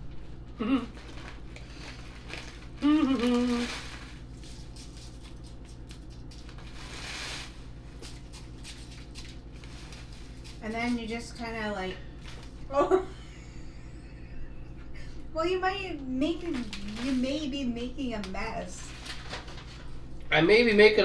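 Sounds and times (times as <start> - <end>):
low electrical hum: 0.0 - 21.0
person humming: 0.6 - 1.0, 2.8 - 3.8.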